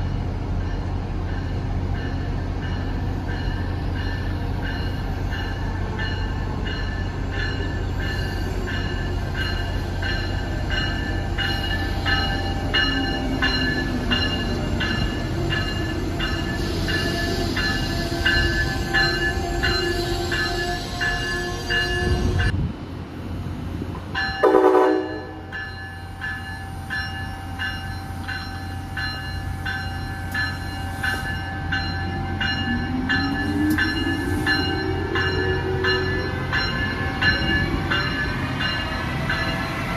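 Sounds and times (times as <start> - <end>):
train bell ringing: 0.0 - 22.6, 24.1 - 39.9
rising tone of train: 0.0 - 39.9
train idling: 0.0 - 39.9
train horn blast: 19.3 - 22.5, 24.4 - 25.4.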